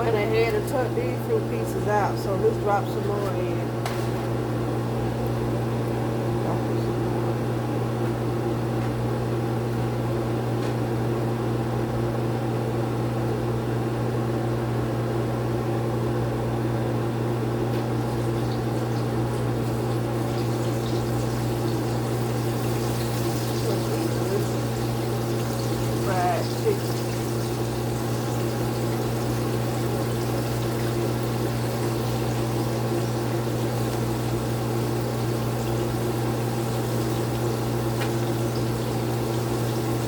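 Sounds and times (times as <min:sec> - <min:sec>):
low mechanical hum: 0:00.0 - 0:40.0
chicken sizzling in hot oil: 0:17.8 - 0:40.0.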